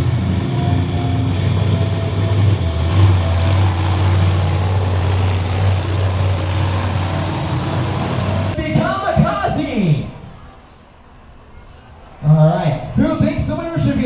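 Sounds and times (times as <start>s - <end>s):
monster truck engine idling: 0.0s - 8.6s.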